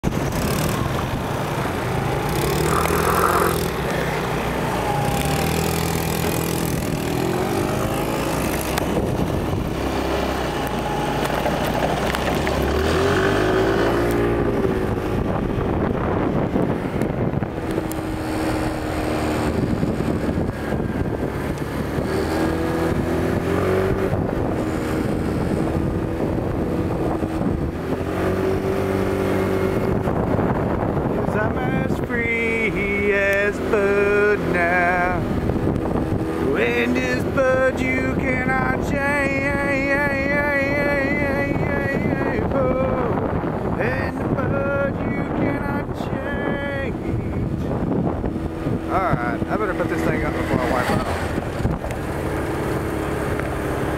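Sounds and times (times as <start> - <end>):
vehicle engine revving: 0.0 - 53.9
wind and road noise: 0.0 - 53.9.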